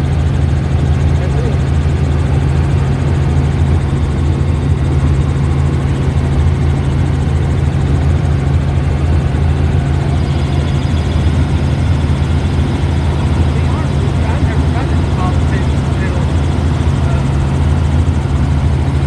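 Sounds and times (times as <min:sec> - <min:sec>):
helicopter droning: 0:00.0 - 0:19.0.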